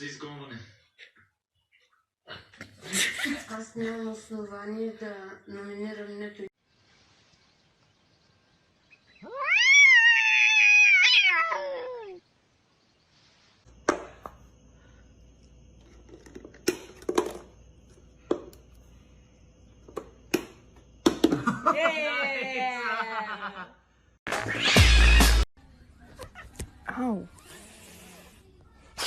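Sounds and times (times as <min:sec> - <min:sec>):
cat meowing loudly: 0:09.2 - 0:12.2, 0:24.4 - 0:25.4.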